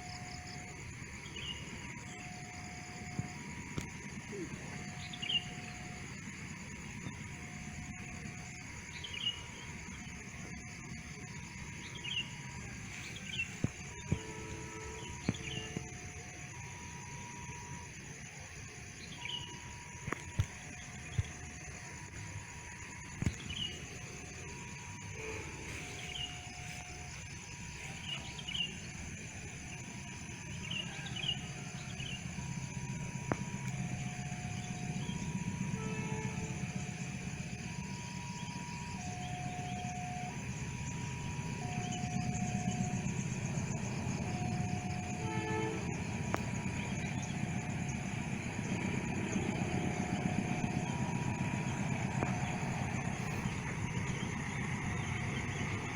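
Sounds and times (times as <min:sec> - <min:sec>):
distant engine rumble: 0:00.0 - 0:55.9.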